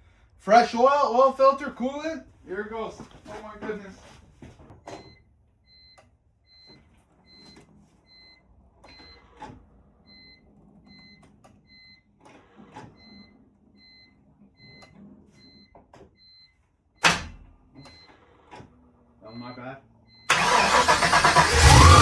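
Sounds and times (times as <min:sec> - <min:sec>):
light knocks and rustles: 0:03.0 - 0:05.2.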